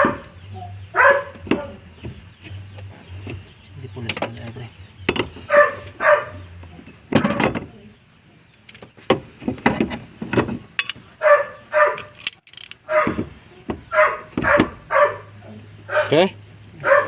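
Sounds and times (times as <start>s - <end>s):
dog barking: 0.0s - 1.8s, 5.5s - 6.5s, 11.2s - 12.2s, 12.8s - 13.3s, 13.9s - 17.0s.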